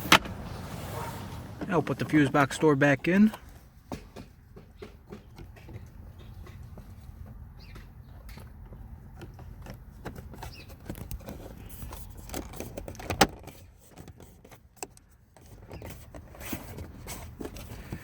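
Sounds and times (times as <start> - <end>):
plastic panel clicking and rattling: 7.7 - 18.0.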